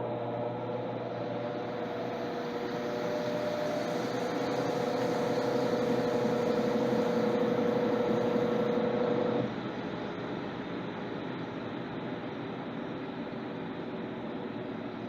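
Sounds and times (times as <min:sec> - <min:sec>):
washing machine humming: 0:00.0 - 0:11.4.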